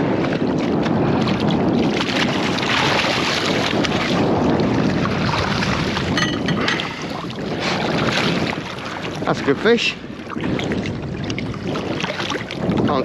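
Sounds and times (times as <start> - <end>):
water washing against boat hull: 0.0 - 13.0
wind buffeting microphone: 0.0 - 13.0.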